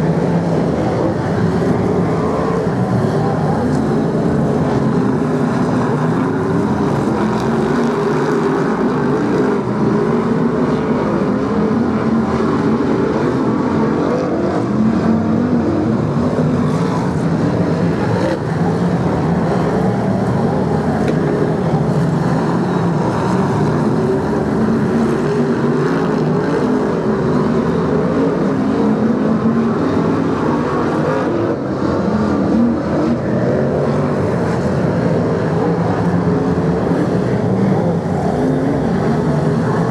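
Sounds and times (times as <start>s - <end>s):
racing car engines: 0.0s - 39.9s.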